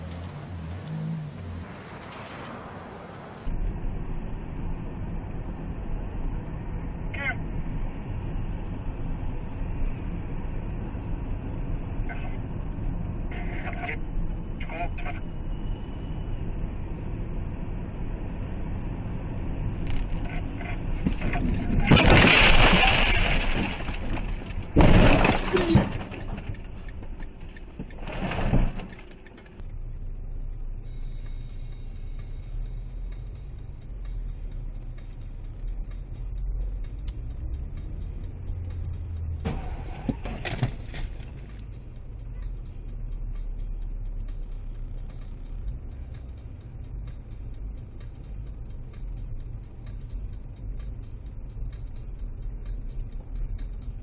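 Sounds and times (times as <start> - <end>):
car engine and road rumble: 0.0 - 54.0
knocks and clatter: 20.9 - 29.6.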